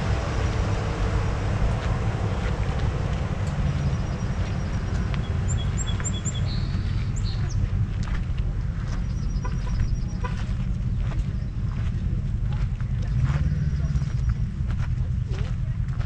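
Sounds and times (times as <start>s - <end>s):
low outdoor rumble: 0.0s - 16.0s
bird singing high chirps: 3.6s - 7.6s.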